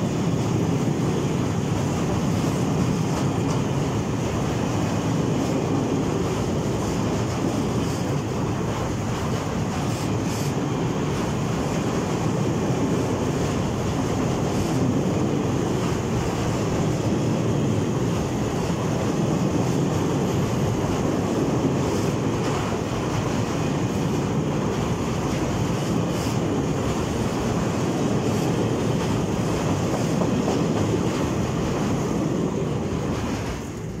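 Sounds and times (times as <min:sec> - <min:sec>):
train wagons rolling on rails: 0:00.0 - 0:34.0.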